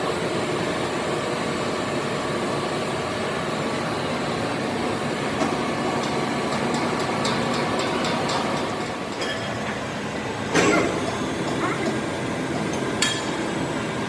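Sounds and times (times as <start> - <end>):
machinery noise: 4.5 - 14.0.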